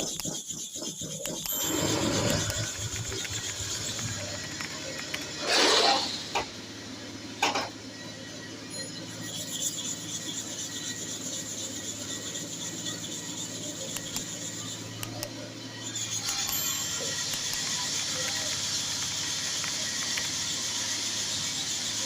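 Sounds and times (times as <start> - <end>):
clipper blade scraping on sharpener: 0.0 - 3.6, 13.7 - 15.3, 15.9 - 17.7
low hum: 1.2 - 22.0.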